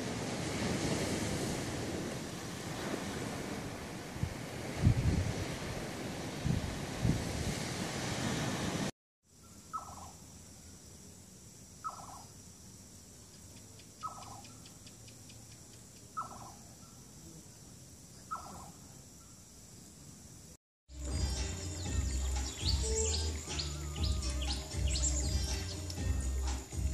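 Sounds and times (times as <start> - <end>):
wind and surf: 0.0 - 8.9.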